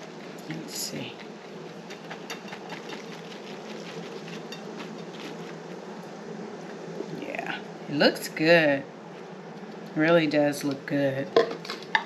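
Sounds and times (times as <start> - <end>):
steady background hum: 0.0 - 12.0
salad rustling into a bowl: 1.0 - 5.8.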